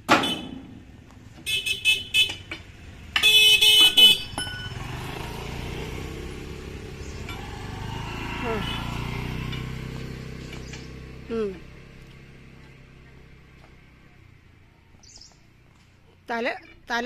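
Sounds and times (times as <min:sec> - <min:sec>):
engine humming: 0:00.0 - 0:17.0
vehicle horn toots: 0:00.1 - 0:00.7, 0:01.4 - 0:02.5, 0:03.2 - 0:04.4.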